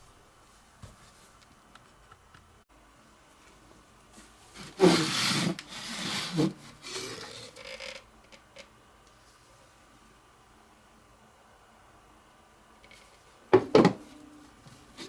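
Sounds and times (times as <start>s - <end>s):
objects scraping and rubbing: 4.5s - 8.0s.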